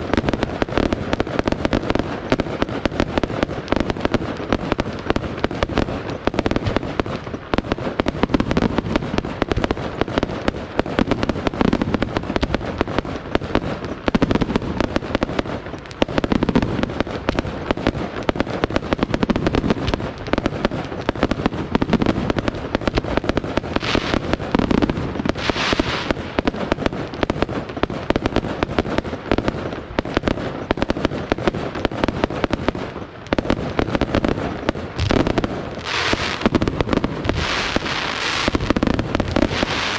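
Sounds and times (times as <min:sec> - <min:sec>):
fireworks bangs and crackling: 0:00.0 - 0:39.9
firework hissing streaks: 0:23.8 - 0:24.3, 0:25.4 - 0:26.2.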